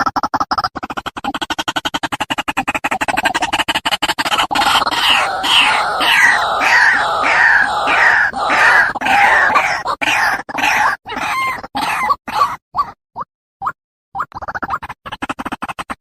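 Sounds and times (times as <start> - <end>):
waterhen calling harsh notes: 4.6 - 12.0.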